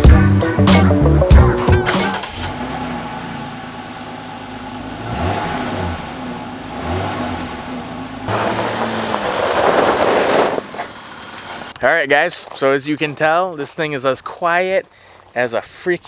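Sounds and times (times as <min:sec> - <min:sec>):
car engine idling and revving: 0:00.7 - 0:11.8.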